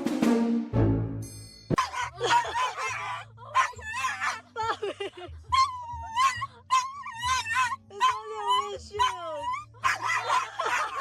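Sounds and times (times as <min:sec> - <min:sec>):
dog whining: 0:01.8 - 0:04.5, 0:05.5 - 0:11.0.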